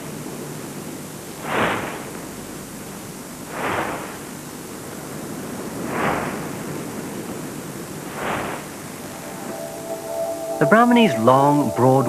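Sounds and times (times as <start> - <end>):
water lapping swishes: 0.0 - 9.2
steady hiss: 0.0 - 12.0.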